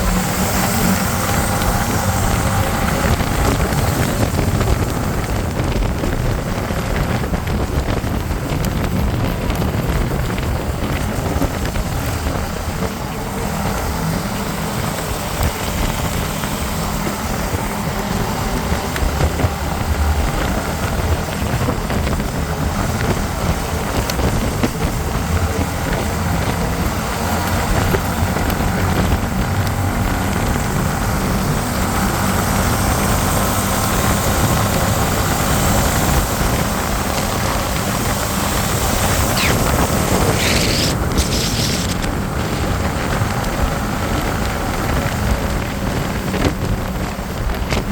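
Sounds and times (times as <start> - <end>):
motorcycle engine drone: 0.0 - 47.9
wind rushing over microphone: 0.0 - 47.9
high whine: 39.2 - 42.3.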